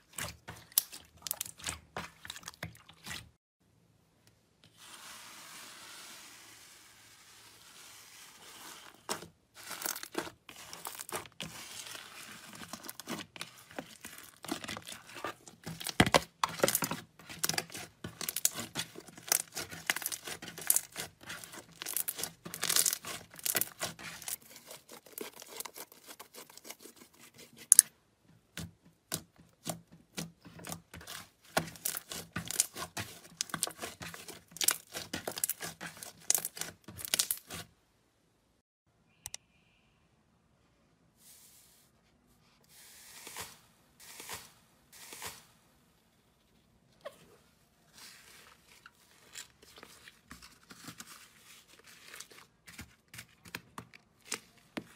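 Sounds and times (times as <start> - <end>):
slime squishing: 0.0 - 3.4, 9.1 - 27.9, 28.5 - 37.7.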